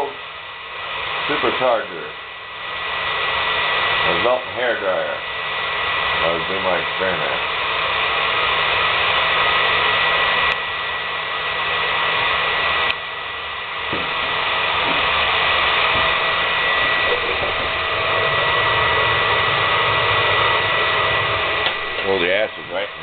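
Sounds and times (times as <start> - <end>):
hair dryer blowing air: 0.0 - 23.0.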